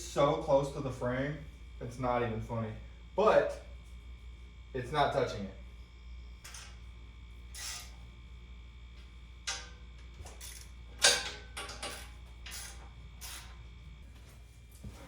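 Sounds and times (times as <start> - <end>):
metallic clanks and clinks: 9.5 - 12.8.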